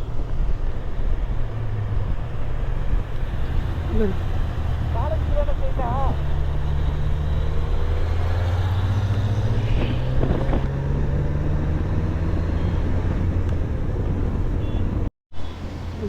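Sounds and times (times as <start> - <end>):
road noise: 0.0 - 16.0
vehicle engine humming: 0.0 - 16.0.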